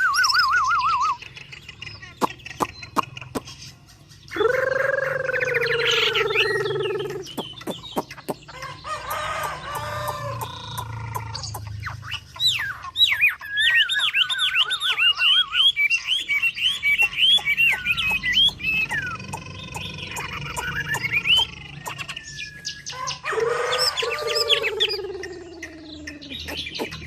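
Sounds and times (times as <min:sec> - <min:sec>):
songbird trilling: 0:00.0 - 0:27.0
rooster crowing: 0:08.6 - 0:10.6, 0:22.9 - 0:25.1.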